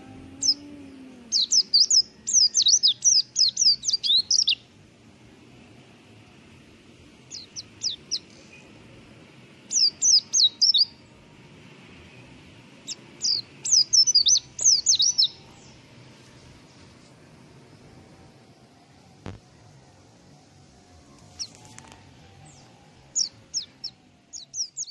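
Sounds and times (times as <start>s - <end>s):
bird singing high down-slurred notes: 0.0s - 4.6s, 12.9s - 15.8s.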